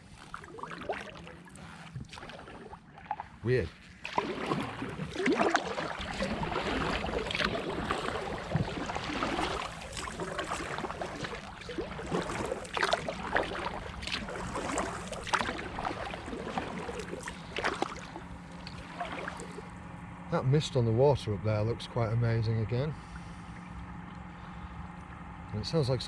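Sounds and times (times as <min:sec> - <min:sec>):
water slapping against kayak: 0:00.0 - 0:19.8
paddle blades splashing: 0:00.0 - 0:20.0, 0:23.0 - 0:25.2.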